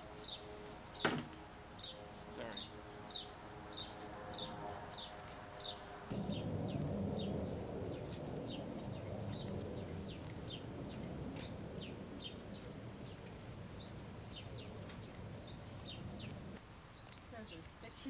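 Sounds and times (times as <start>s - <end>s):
low background rumble: 0.0s - 18.0s
small bird chirping: 1.8s - 18.0s.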